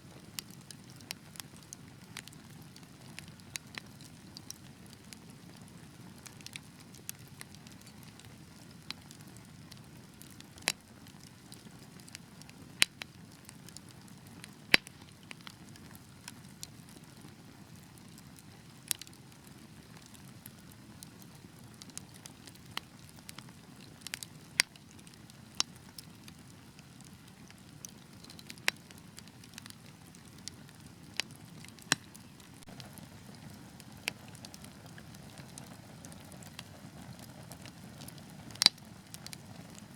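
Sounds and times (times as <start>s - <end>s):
wood fire crackling: 0.0s - 39.9s
sharp fire pops: 31.2s - 34.8s.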